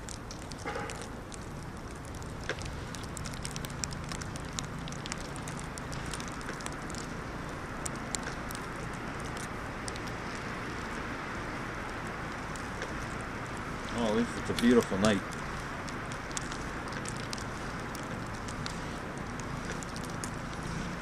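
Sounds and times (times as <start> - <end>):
snow ticking on plastic: 0.0 - 21.0.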